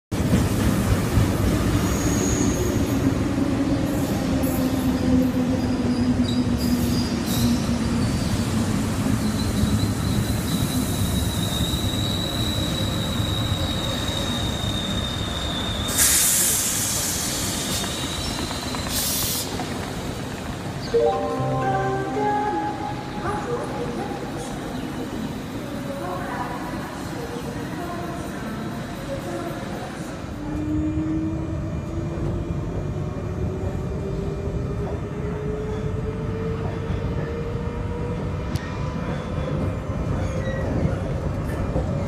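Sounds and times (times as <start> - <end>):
train wheels rumbling on rail: 0.1 - 20.9, 23.3 - 42.0
high wheel squeal: 9.3 - 19.5.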